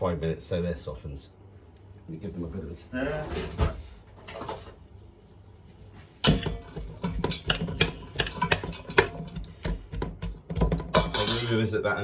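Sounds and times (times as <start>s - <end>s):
spoon scraping a frying pan: 6.2s - 9.8s.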